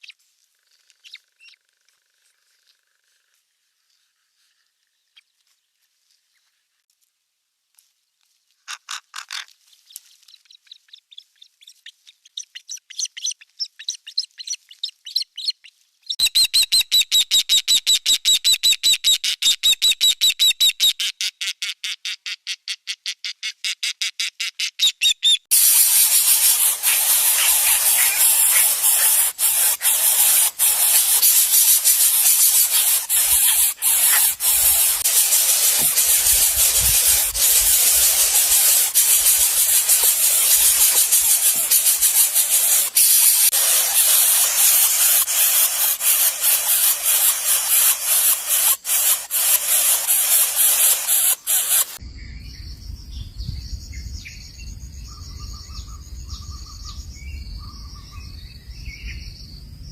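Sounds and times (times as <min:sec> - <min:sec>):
loud steady hiss: 0:25.5 - 0:52.0.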